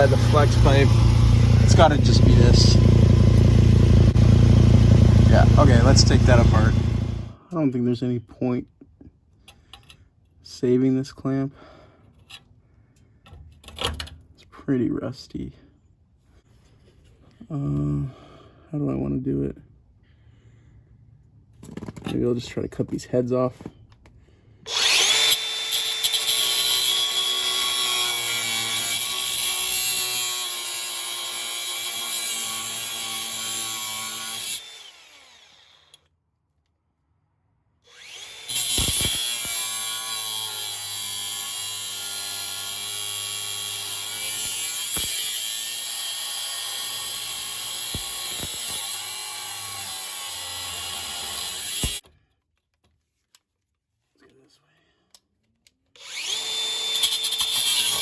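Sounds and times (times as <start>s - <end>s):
grinder cutting metal: 0.0s - 7.4s, 24.7s - 36.0s, 37.9s - 52.0s, 56.0s - 58.0s.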